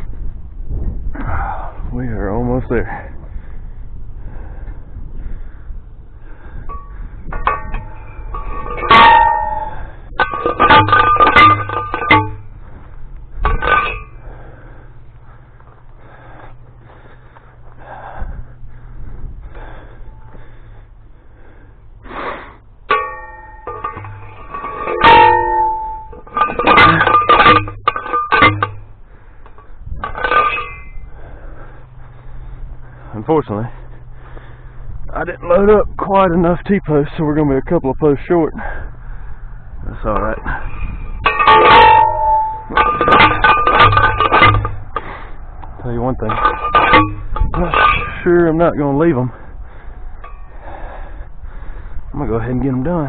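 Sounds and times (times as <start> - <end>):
metal fencing gear clanking: 6.6 - 17.3, 22.9 - 31.8, 39.9 - 49.4.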